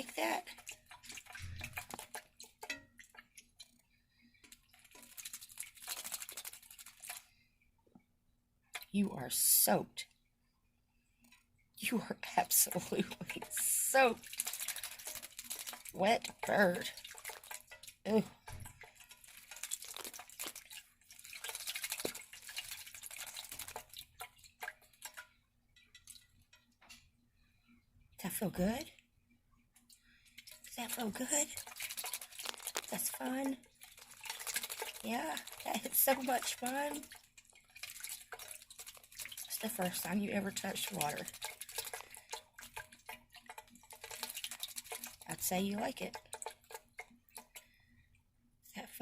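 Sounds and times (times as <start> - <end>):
bird fluttering wet feathers: 0.2 - 2.5, 4.4 - 7.4, 12.7 - 18.0, 18.7 - 25.3, 31.4 - 47.6
small bird splashing in water: 4.6 - 7.2, 14.2 - 25.3, 31.6 - 45.4.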